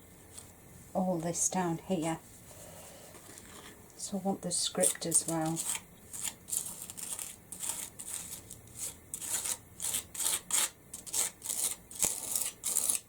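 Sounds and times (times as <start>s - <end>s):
spatula scraping paste: 4.7s - 13.0s.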